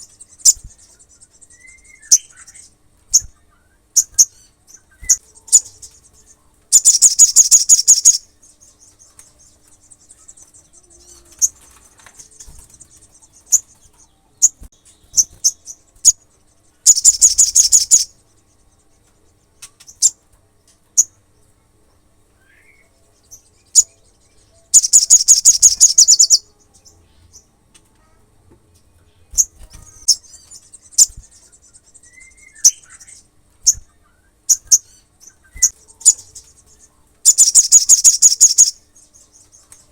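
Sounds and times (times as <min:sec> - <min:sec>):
sunbird high-pitched trills: 0:00.0 - 0:21.3, 0:22.4 - 0:28.2, 0:29.1 - 0:39.9
faint high twitter: 0:12.0 - 0:19.0, 0:22.4 - 0:27.2, 0:29.1 - 0:39.8.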